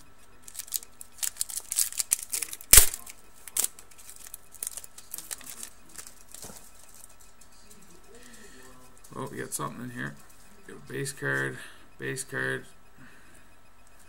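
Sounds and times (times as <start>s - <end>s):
card pack wrapper tearing: 0.4s - 6.5s
loud sharp snap: 2.7s - 3.1s.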